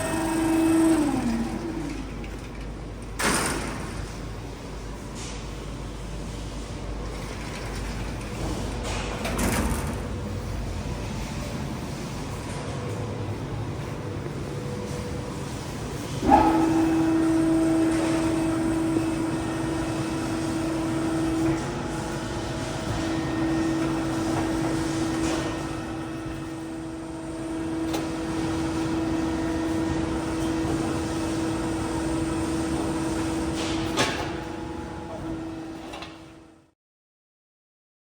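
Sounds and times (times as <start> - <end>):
hydraulic pump humming: 0.0 - 3.2, 12.8 - 36.1
hydraulic pump clunk: 16.2 - 26.8, 29.6 - 36.3.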